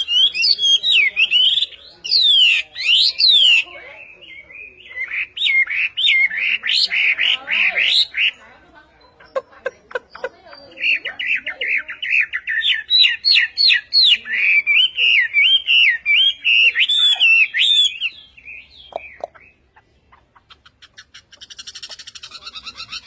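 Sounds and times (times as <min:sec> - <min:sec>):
songbird whistling: 0:00.0 - 0:08.4, 0:10.1 - 0:19.8
bird low downward calls: 0:00.0 - 0:23.0.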